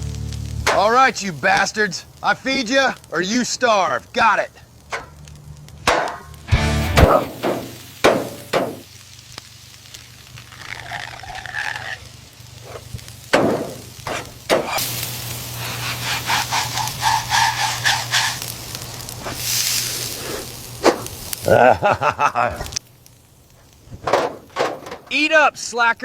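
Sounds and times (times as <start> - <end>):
food sizzling in a pan: 0.0 - 24.1
sharp knocks: 5.8 - 6.3, 7.0 - 8.8, 13.3 - 14.8, 24.0 - 25.1.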